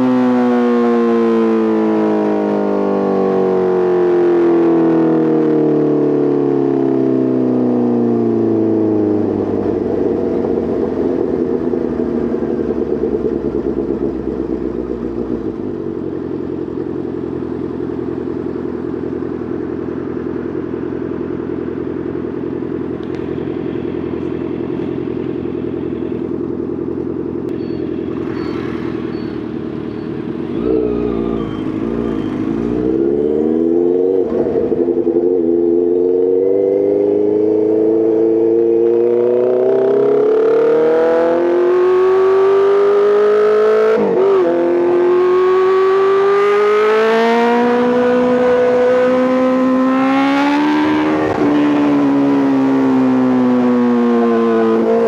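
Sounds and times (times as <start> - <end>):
motorcycle engine revving: 0.0 - 7.6, 8.3 - 55.0.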